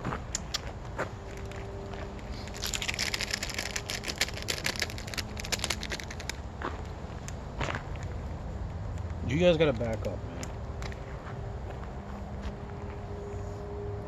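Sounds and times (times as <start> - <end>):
bag of peanuts crinkling: 1.2 - 6.4.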